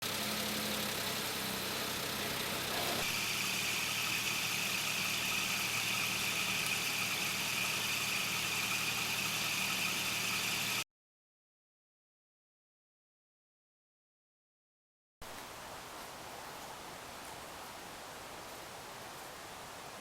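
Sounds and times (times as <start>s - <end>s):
engine idling: 0.0s - 10.8s.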